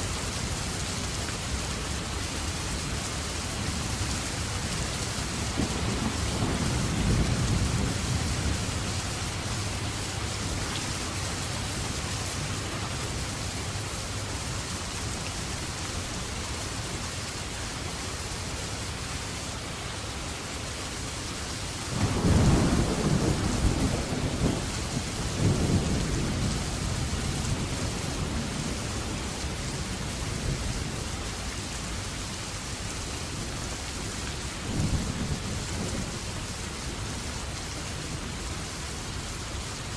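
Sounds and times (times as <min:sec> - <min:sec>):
steady rain falling: 0:00.0 - 0:39.9
thunder rumbling: 0:05.4 - 0:10.6, 0:21.9 - 0:31.0.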